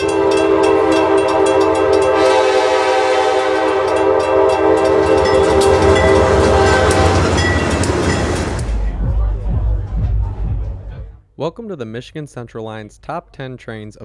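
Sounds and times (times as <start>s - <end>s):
train horn: 0.0s - 7.9s
rail clicks: 0.0s - 9.0s
train rumble: 0.0s - 11.2s.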